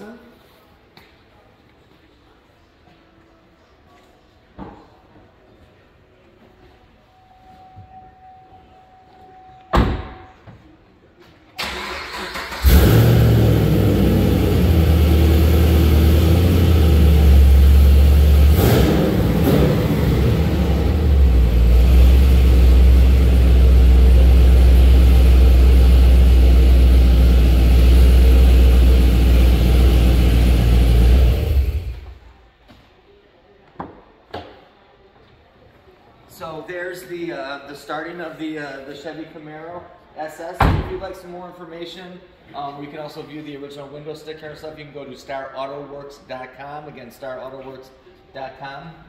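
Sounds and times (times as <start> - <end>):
car engine starting: 11.6 - 32.3
car engine idling: 11.8 - 32.2.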